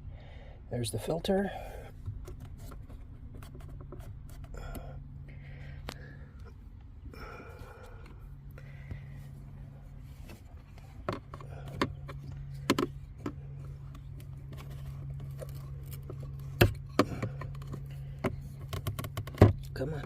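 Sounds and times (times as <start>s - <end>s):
steady low hum: 0.0s - 20.0s
plastic knocks and scraping: 10.2s - 19.8s.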